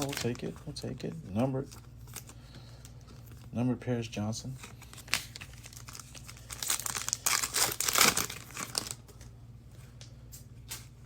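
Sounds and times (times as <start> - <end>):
plastic packaging crinkling and tearing: 0.0 - 3.6, 4.4 - 9.3.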